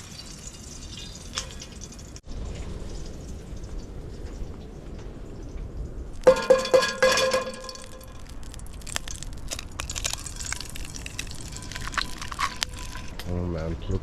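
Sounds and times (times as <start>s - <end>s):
metal cookware clinking: 0.0s - 2.1s, 6.2s - 8.2s
light clicks and crackles: 7.6s - 13.3s.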